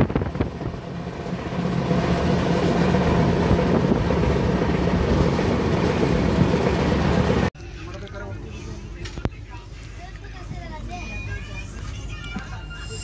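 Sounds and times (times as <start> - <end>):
train wheels rumbling on rail: 0.0 - 7.5
wind: 0.0 - 13.0.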